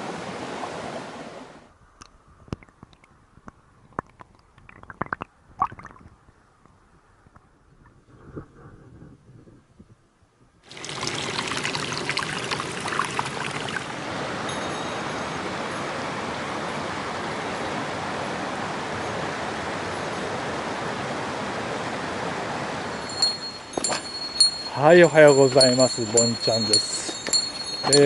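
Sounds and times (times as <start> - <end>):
stream water rushing over rocks: 0.0 - 1.6, 10.7 - 28.0.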